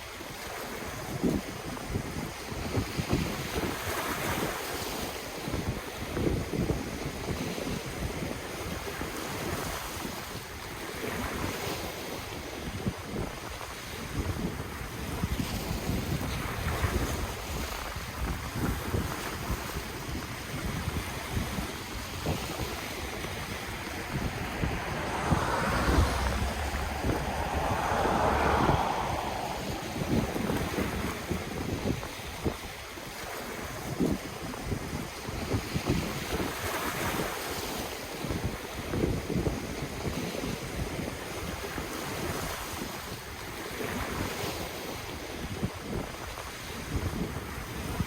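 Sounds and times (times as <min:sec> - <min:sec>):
wind rumbling on microphone: 0:12.2 - 0:44.3
ocean waves washing in: 0:19.9 - 0:32.3.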